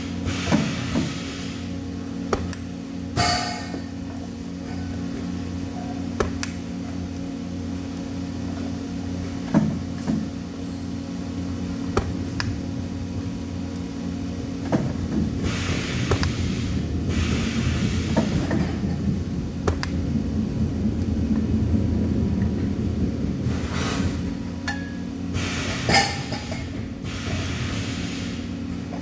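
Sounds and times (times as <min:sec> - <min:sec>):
hissing bursts: 0:00.0 - 0:01.8, 0:15.4 - 0:20.7, 0:25.3 - 0:28.8
machine hum: 0:00.0 - 0:29.0.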